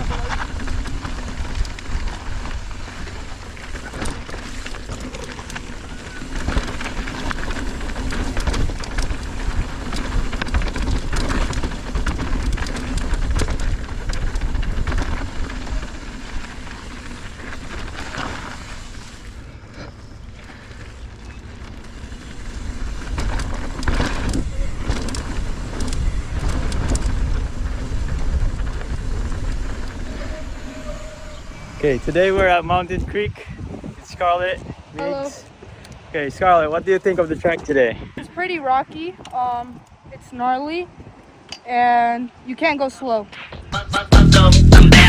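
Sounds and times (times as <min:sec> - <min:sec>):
bike tyres clattering over rocks: 0:00.0 - 0:35.2
wind rumbling on microphone: 0:00.0 - 0:41.6.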